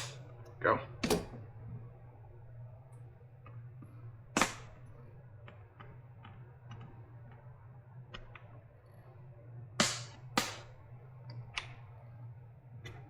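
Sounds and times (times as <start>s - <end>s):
steady low hum: 0.0s - 13.0s
loud sharp snap: 4.3s - 4.8s, 9.8s - 10.7s.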